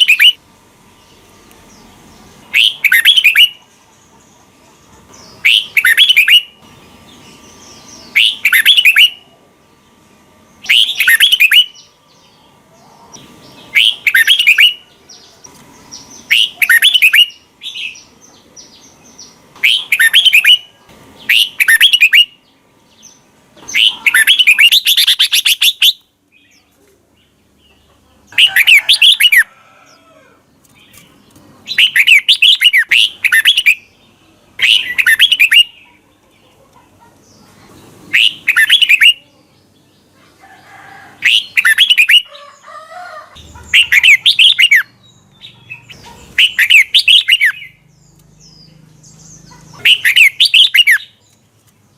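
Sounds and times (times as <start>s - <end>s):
bird whistling song: 0.0s - 0.4s, 2.5s - 3.6s, 5.4s - 6.6s, 8.1s - 9.2s, 10.6s - 11.9s, 13.7s - 14.8s, 16.3s - 18.1s, 19.6s - 22.4s, 23.7s - 26.1s, 31.7s - 33.9s, 34.6s - 35.8s, 38.1s - 39.2s, 41.2s - 42.3s, 43.6s - 47.9s, 49.8s - 51.2s.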